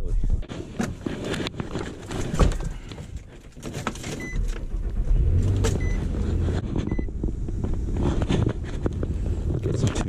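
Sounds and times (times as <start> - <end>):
truck engine starting and idling: 4.0 - 9.6.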